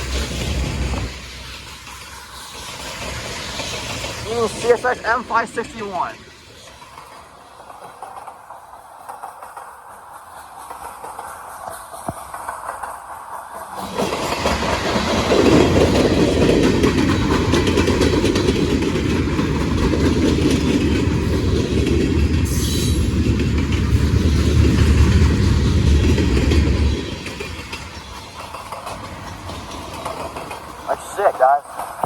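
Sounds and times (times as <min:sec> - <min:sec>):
train wheels clattering on rails: 0:00.0 - 0:32.0.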